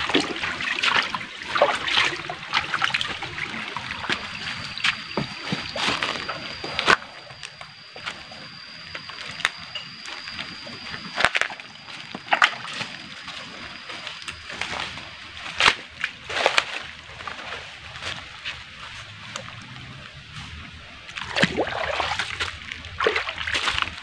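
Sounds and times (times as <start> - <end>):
footsteps splashing through stream: 0.0 - 7.0, 11.2 - 19.6, 20.4 - 24.0
faint steady high tone: 0.0 - 24.0.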